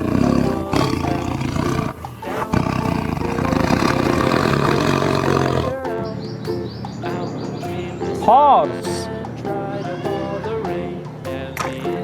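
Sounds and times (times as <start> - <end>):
tiger roaring: 0.0 - 5.8.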